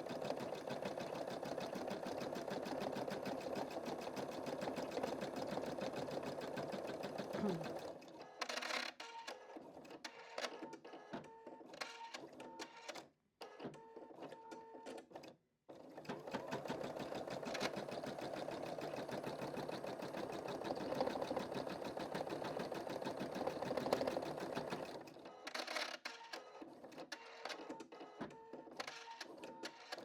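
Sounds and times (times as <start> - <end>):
embroidery machine stitching: 0.0 - 8.0, 15.7 - 25.8.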